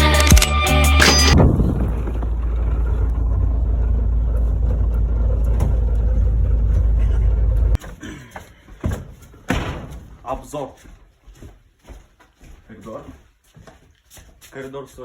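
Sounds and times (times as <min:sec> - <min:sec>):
car engine and road noise: 0:00.1 - 0:07.8.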